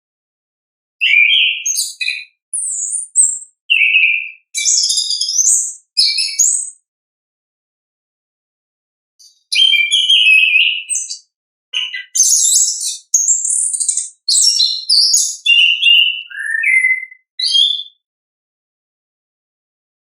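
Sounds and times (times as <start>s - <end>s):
thrush singing chirps and whistles: 1.0s - 6.9s, 9.2s - 18.0s.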